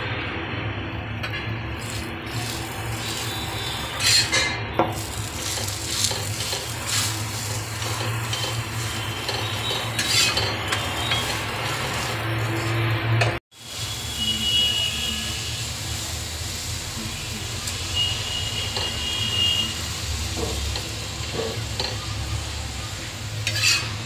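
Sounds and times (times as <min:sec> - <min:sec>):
flatbread sizzling in oil: 0:01.7 - 0:24.0
metal spatula scraping griddle: 0:01.8 - 0:13.0, 0:23.4 - 0:24.0.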